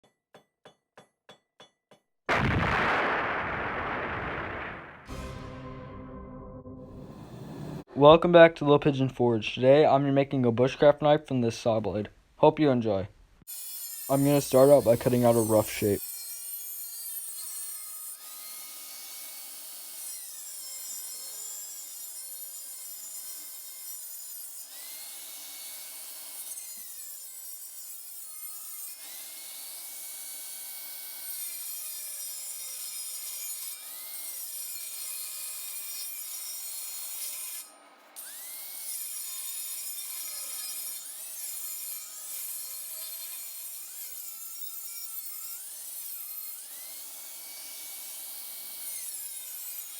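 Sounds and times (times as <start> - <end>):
saw cutting steel with whine: 13.5 - 49.9.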